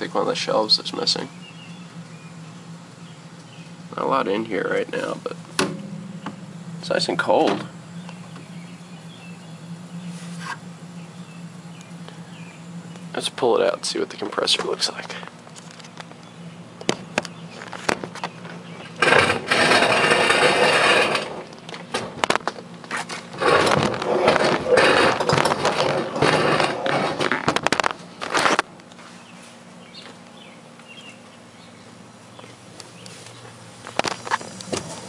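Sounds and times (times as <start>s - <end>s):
fridge scraping across floor: 18.8s - 21.5s, 22.9s - 28.6s.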